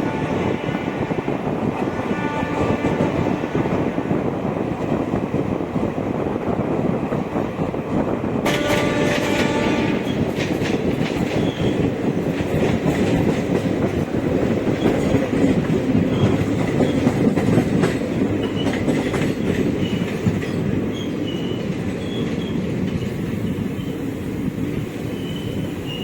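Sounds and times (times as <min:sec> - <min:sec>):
train coaches rumbling on track: 0:00.0 - 0:26.0
wheels clicking over rail joints: 0:08.3 - 0:24.0
high-pitched wheel squeals: 0:20.9 - 0:24.0, 0:25.1 - 0:26.0.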